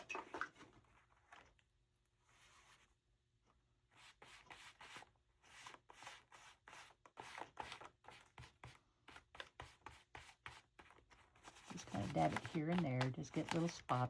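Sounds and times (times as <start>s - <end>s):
stenciling tool dabbing on paper: 3.9s - 14.0s.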